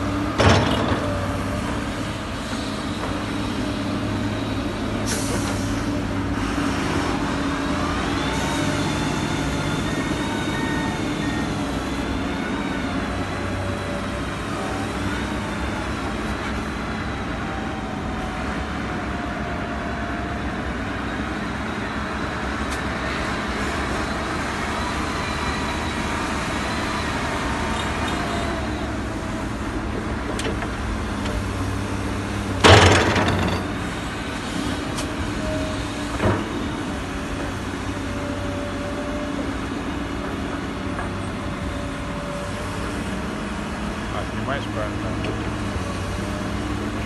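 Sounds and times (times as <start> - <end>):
diesel engine running: 0.0 - 47.0
loud clattering bang: 32.6 - 33.8.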